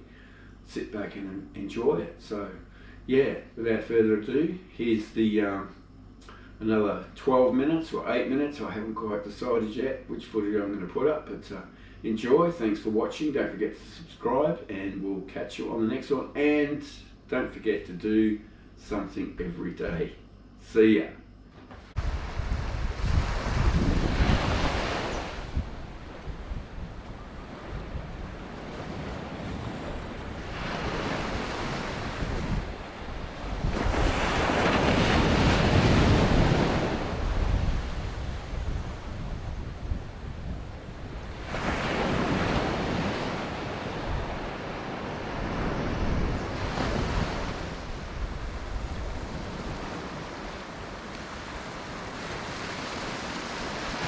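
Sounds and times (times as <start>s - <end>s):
wind buffeting microphone: 21.9s - 52.6s
ocean waves breaking on beach: 21.9s - 54.0s.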